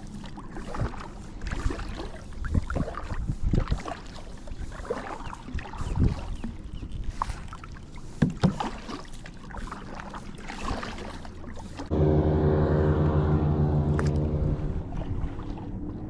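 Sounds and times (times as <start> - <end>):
knocks and rustles against kayak hull: 5.6 - 11.8
loud buzzing drone: 11.9 - 16.0.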